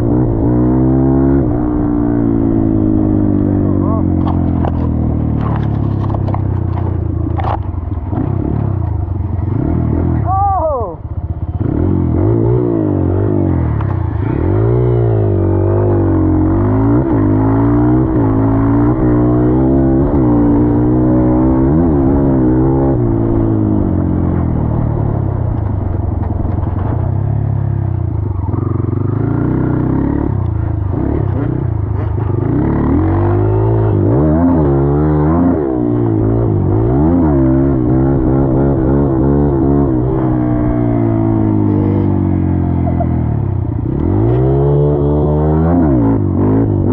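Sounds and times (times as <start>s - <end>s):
dirt bike engine revving: 11.6s - 24.9s, 28.4s - 46.9s.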